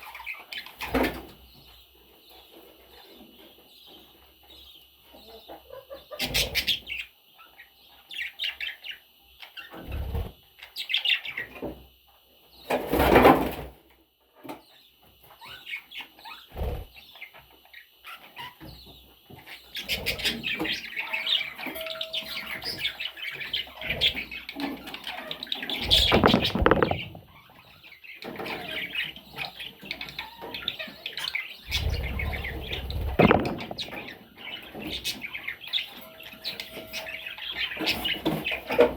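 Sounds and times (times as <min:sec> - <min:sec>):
budgerigars chirping: 0:05.3 - 0:11.6, 0:15.2 - 0:38.9
wings flapping: 0:16.6 - 0:16.9, 0:25.8 - 0:27.3, 0:31.7 - 0:34.1.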